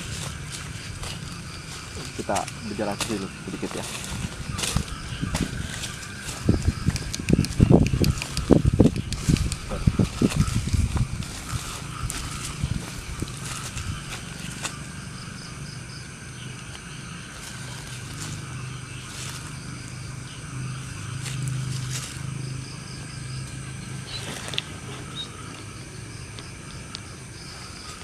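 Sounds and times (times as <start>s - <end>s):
insects trilling: 0.0s - 28.0s
low hum: 0.0s - 28.0s.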